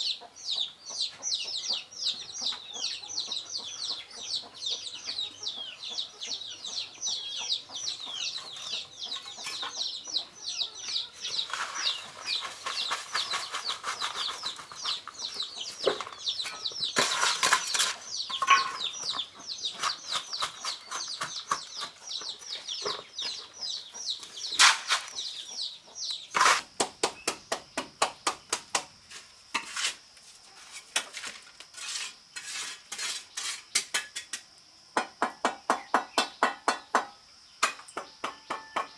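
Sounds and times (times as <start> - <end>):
chicks peeping: 0.0 - 28.6.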